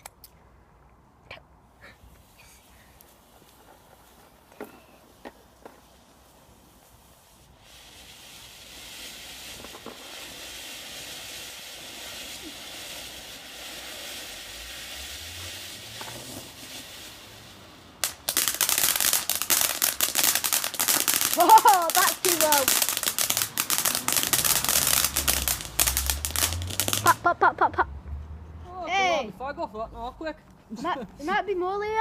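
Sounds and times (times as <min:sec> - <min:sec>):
firework hissing: 0:01.9 - 0:27.4
sharp crack: 0:15.4 - 0:27.3
rapid crackling and popping: 0:18.0 - 0:27.2.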